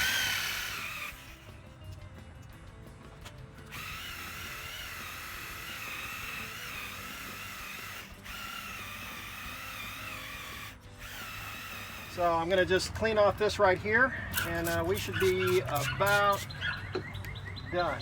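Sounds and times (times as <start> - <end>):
electric buffer motor whine: 0.0 - 1.5.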